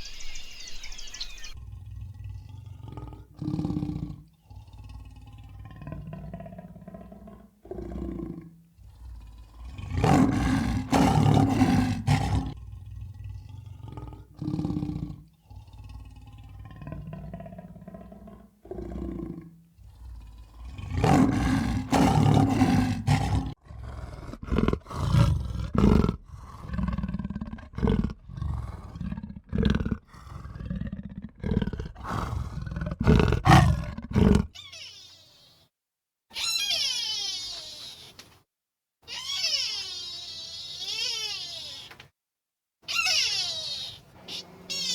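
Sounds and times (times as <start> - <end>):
loud animal calls: 34.5 - 35.6, 36.3 - 38.3, 39.1 - 42.0, 42.8 - 44.9.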